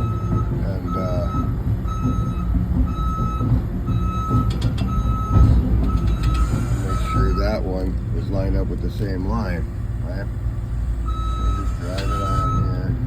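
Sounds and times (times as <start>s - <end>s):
diesel engine rumble: 0.0s - 13.0s
excavator travel alarm beeping: 0.0s - 13.0s
metal clank: 4.3s - 7.4s, 11.9s - 12.5s.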